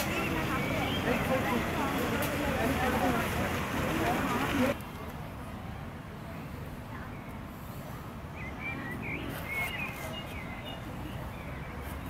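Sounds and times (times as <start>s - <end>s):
songbirds chirping: 0.0s - 4.8s, 8.2s - 12.0s.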